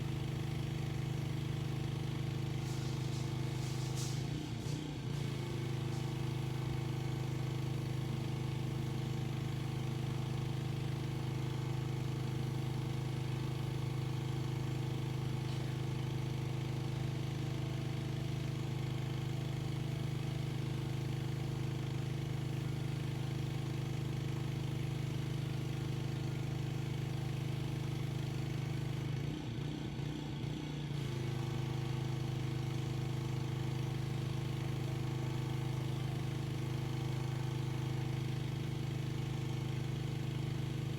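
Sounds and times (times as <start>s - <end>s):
pressure washer engine running: 0.0s - 40.9s.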